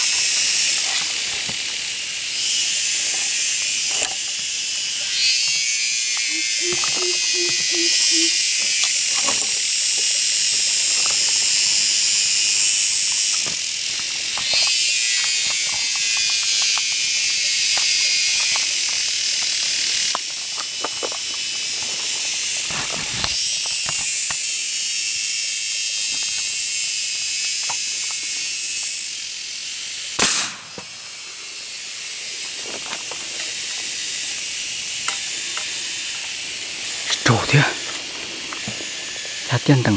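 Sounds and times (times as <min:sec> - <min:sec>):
cicadas chorus: 0:00.0 - 0:39.9
sharp crack: 0:30.2 - 0:30.9.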